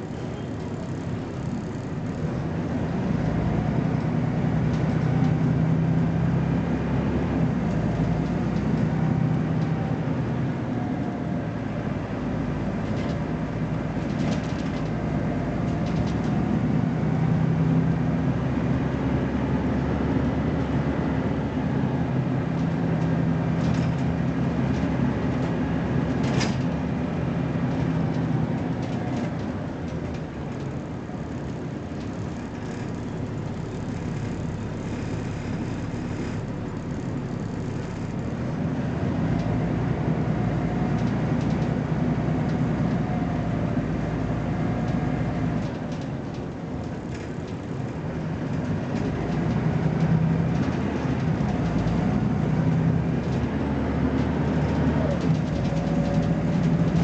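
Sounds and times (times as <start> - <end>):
bus engine under load: 0.0 - 57.0.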